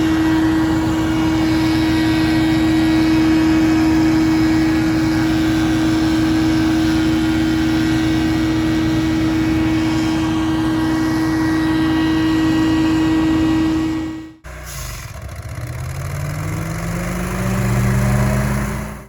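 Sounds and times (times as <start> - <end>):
leaf blower engine humming: 0.0 - 14.4.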